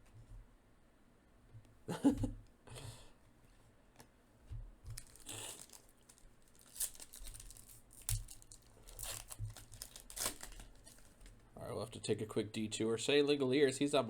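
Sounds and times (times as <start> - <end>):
foil wrappers crinkling: 4.9 - 11.4.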